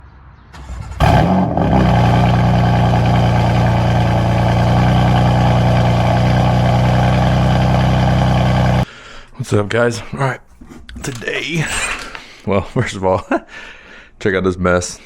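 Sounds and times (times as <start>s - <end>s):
car engine starting and idling: 0.6s - 8.8s.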